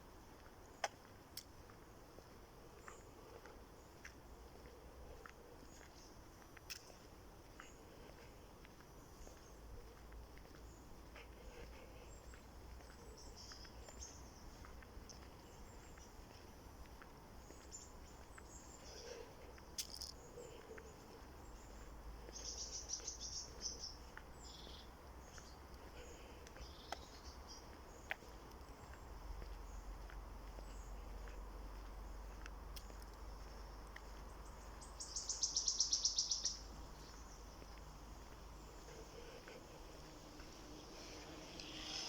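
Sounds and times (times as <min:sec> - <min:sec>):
birds chirping: 0:00.4 - 0:42.0
insects chirping: 0:32.7 - 0:42.0.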